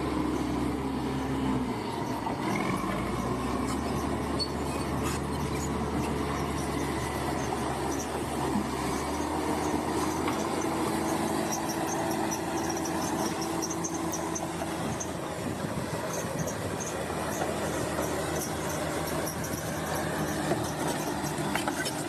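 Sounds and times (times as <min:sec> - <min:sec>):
bulldozer diesel engine running: 0:00.0 - 0:22.0
steel tracks squeaking: 0:02.0 - 0:15.3, 0:16.0 - 0:22.0.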